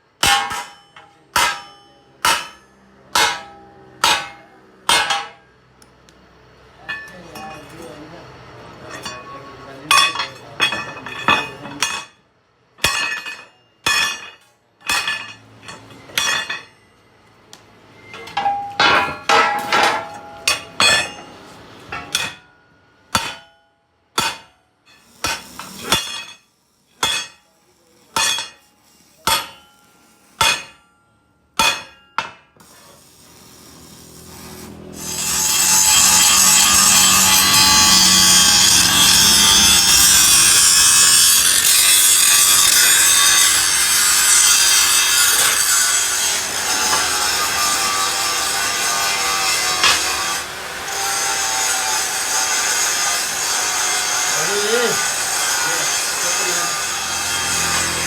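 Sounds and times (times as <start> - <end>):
hammer on metal: 0.2 - 5.4, 9.0 - 12.2, 12.8 - 16.8, 18.0 - 26.4, 27.0 - 27.5, 28.1 - 32.5, 35.2 - 57.9
power tool running: 33.2 - 58.0.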